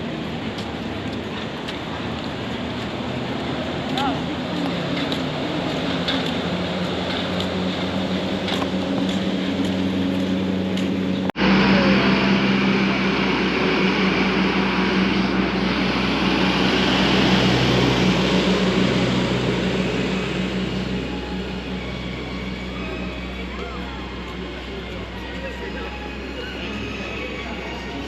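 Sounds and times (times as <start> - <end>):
gondola cabin humming on cable: 0.0 - 28.0.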